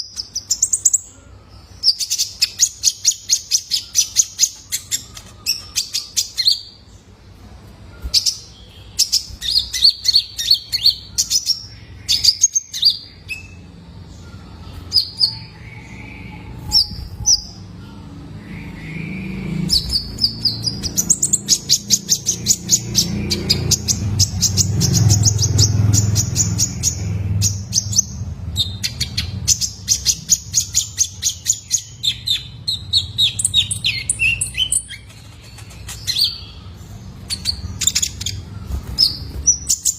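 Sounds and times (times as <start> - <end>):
sunbird twittering chirps: 8.0 - 39.9.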